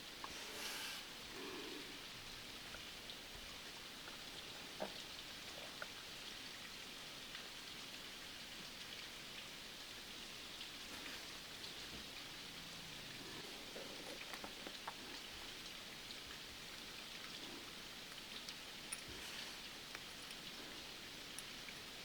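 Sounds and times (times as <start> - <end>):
faint rain falling: 0.0 - 22.0
raindrop ticks: 10.6 - 22.0.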